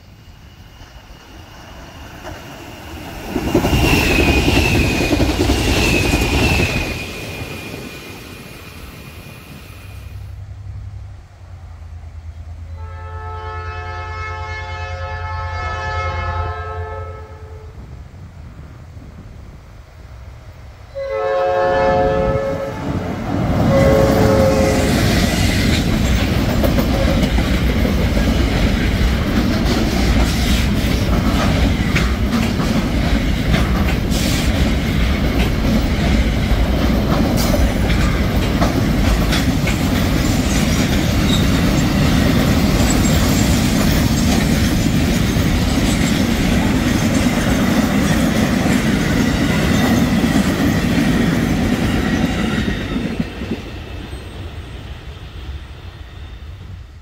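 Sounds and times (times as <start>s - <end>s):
locomotive air horn: 12.7s - 17.8s, 20.9s - 23.0s, 23.6s - 25.0s
wheels clicking on rails: 25.5s - 54.2s.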